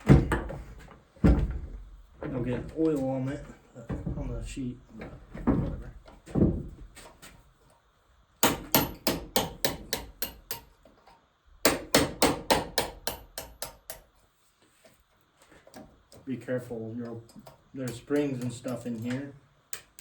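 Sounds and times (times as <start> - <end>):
hammer striking metal: 8.4 - 10.7, 11.6 - 14.0.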